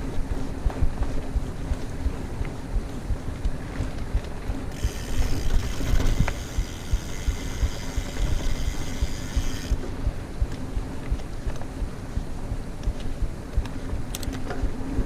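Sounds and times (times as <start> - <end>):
bike tyres rumbling over dirt: 0.0 - 14.0
bicycle freehub buzzing: 4.7 - 9.9.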